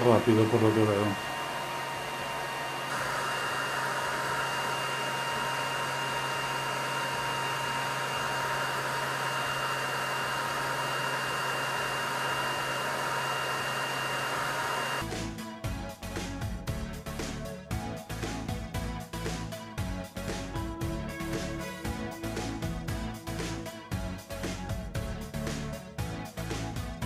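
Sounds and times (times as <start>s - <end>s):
music: 0.0s - 1.2s, 15.0s - 27.0s
laser cooling fan whirring: 0.0s - 15.0s.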